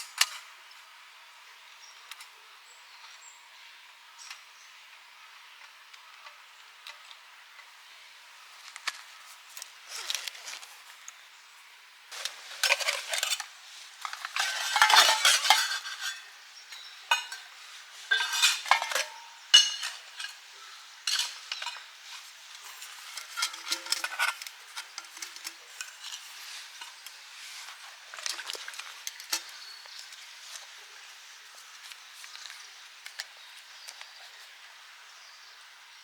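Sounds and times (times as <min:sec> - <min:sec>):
metal camp gear clattering: 0:12.1 - 0:16.3, 0:17.1 - 0:30.3.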